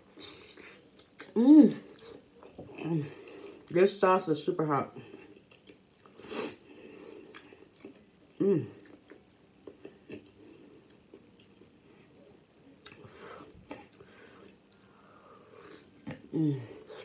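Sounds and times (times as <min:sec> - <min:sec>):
chewing with wet smacks: 0:05.1 - 0:06.2, 0:07.3 - 0:11.7.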